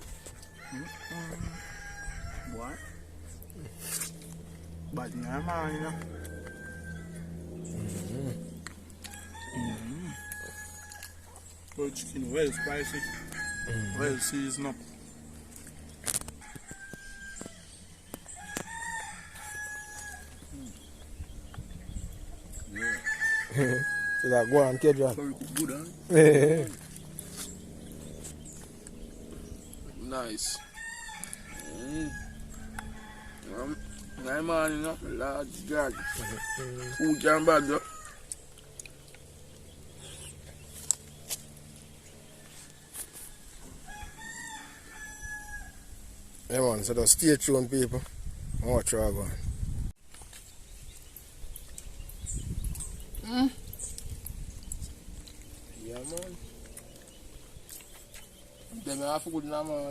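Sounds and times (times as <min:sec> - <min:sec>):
rooster crowing: 0:00.0 - 0:03.1, 0:05.1 - 0:07.7, 0:09.0 - 0:11.4, 0:12.2 - 0:14.9, 0:16.1 - 0:20.8, 0:22.6 - 0:25.3, 0:30.2 - 0:38.4, 0:42.4 - 0:45.9
faint low hum: 0:00.0 - 0:23.8.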